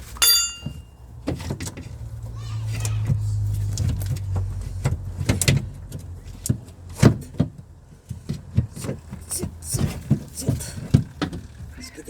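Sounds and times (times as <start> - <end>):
hand tools knocking and clinking: 0.1 - 1.8.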